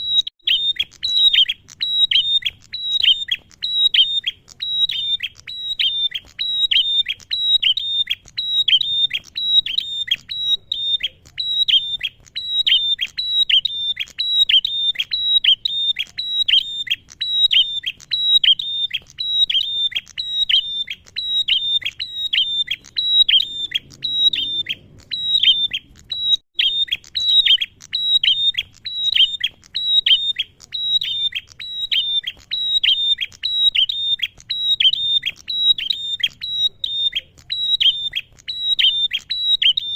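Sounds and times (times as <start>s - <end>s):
bird calling sharp falling notes: 0.0s - 39.9s.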